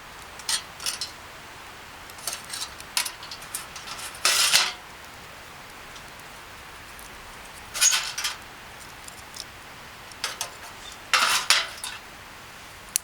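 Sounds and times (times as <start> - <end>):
faint hiss: 0.0 - 13.0
cutlery clinking against dishes: 11.2 - 12.0.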